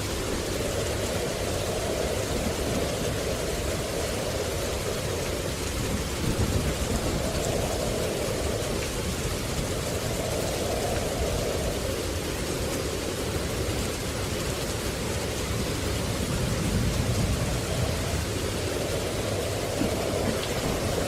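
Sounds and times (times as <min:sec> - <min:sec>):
steady rushing noise: 0:00.0 - 0:21.0
low rumble: 0:15.4 - 0:21.0.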